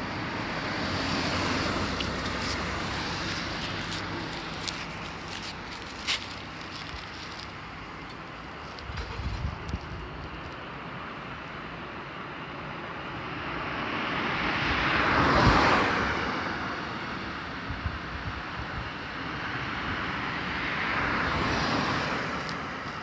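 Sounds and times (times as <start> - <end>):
vehicles passing: 0.0 - 23.0.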